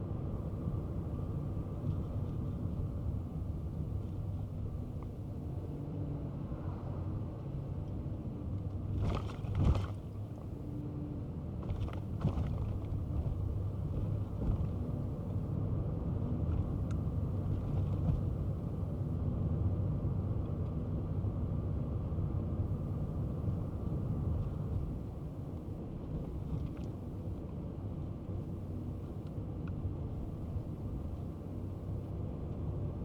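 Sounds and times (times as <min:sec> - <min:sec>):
car engine hum: 0:00.0 - 0:33.0
tyre and road rumble: 0:08.7 - 0:10.8, 0:11.4 - 0:15.6, 0:16.2 - 0:19.0.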